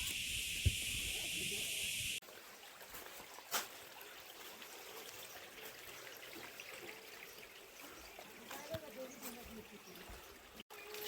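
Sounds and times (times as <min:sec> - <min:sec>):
loud high hiss: 0:00.0 - 0:02.2
water trickling: 0:02.2 - 0:11.0.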